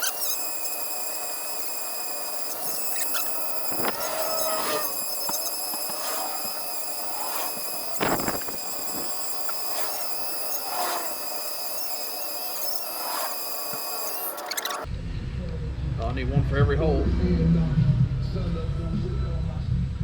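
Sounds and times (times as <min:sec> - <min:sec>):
bit screeching against steel: 0:00.0 - 0:14.9
rotary tool grinding metal: 0:00.0 - 0:14.9.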